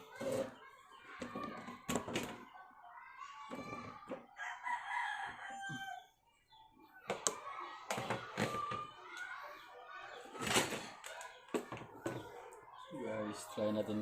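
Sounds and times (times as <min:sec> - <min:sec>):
chickens calling: 0:03.5 - 0:14.0
rooster crowing: 0:04.4 - 0:06.1.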